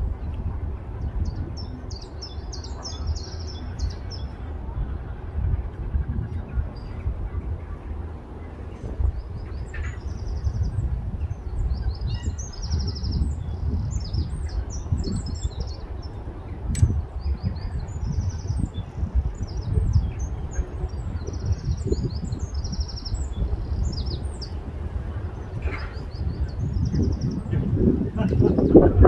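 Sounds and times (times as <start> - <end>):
small birds chirping and trilling: 0.0 - 29.0
wind rumble on microphone: 0.0 - 29.0
sharp click: 16.7 - 17.0.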